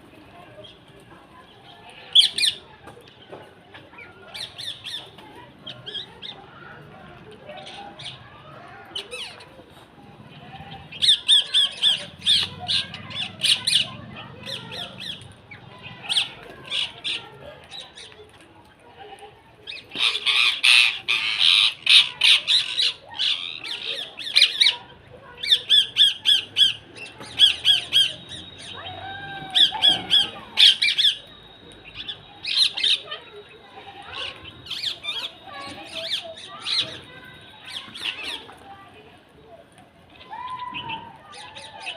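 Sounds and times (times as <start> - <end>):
birds calling high: 0.6 - 9.6, 10.4 - 18.5, 19.6 - 38.8, 40.1 - 41.9.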